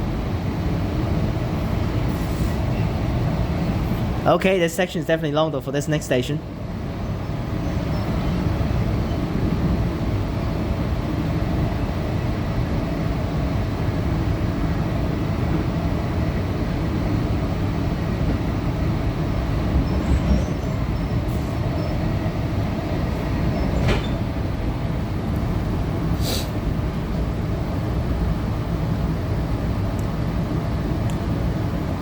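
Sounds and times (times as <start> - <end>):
train wheels rumbling on rail: 0.0 - 5.6, 6.4 - 32.0.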